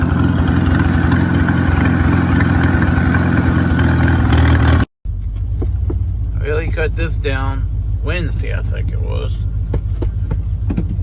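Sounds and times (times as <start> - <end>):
tractor engine humming: 0.0 - 11.0
baler machinery clatter: 8.2 - 11.0.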